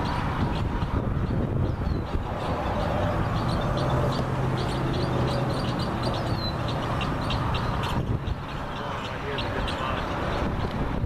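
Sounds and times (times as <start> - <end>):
high-pitched bird chirps: 1.6 - 9.8.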